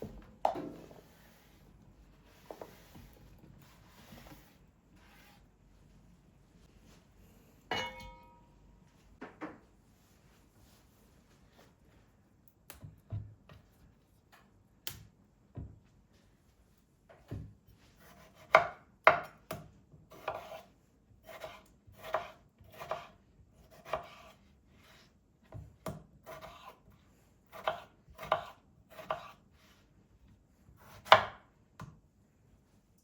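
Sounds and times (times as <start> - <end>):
knife chopping on cutting board: 17.3 - 20.6, 21.2 - 24.4, 25.5 - 26.8, 27.5 - 29.4, 30.8 - 31.4.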